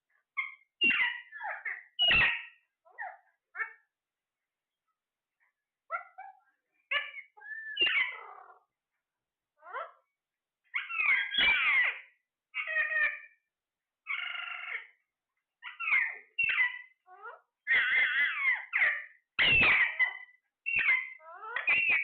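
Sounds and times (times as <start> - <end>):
parrot squawking and whistling: 0.4 - 3.8, 6.9 - 8.6, 10.7 - 12.0, 15.6 - 16.9, 17.7 - 22.0.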